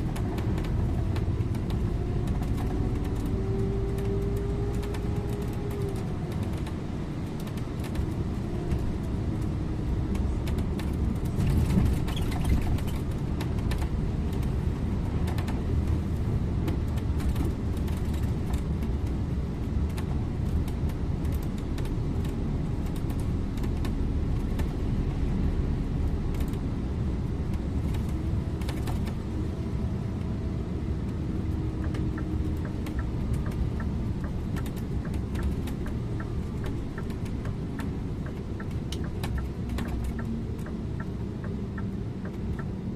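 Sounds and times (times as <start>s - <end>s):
cab rattles and clicks: 0.0s - 25.0s, 26.2s - 29.6s, 31.0s - 42.8s
bus engine and road rumble: 0.0s - 42.9s
turn indicator ticking: 31.8s - 42.9s.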